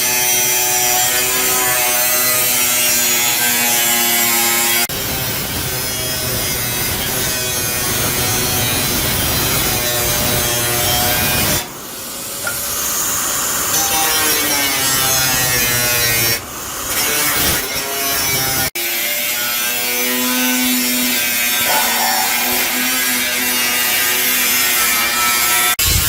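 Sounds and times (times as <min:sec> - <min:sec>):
power tool grating with motor whine: 0:12.4 - 0:26.0.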